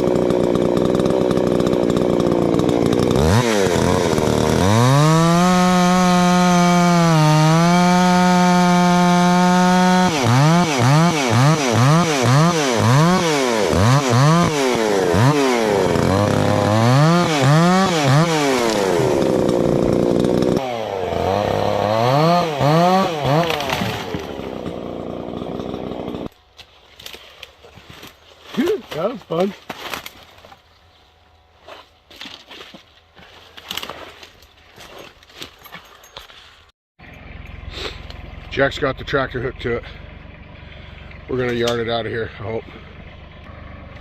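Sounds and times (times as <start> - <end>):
chainsaw revving: 0.0 - 26.3.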